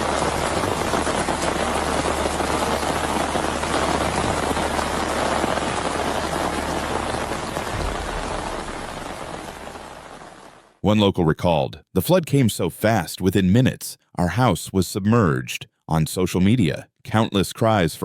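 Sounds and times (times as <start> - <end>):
heavy rain pouring: 0.0 - 10.8
low steady rumble: 7.7 - 10.0.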